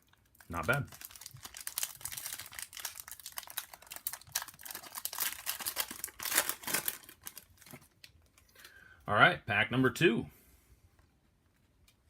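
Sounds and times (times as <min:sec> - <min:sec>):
card wrappers crinkling: 0:00.0 - 0:08.7.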